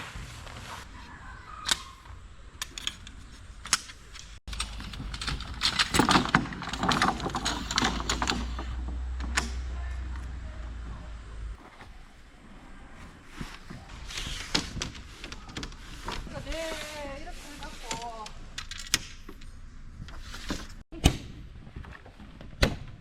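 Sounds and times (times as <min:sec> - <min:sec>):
clattering and rustling: 0:02.6 - 0:09.6
camping gear clicking and knocking: 0:02.6 - 0:09.7.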